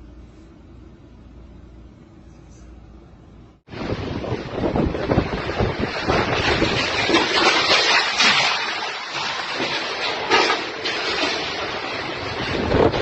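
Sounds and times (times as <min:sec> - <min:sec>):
storm wind buffeting microphone: 0:03.7 - 0:08.5, 0:10.7 - 0:13.0.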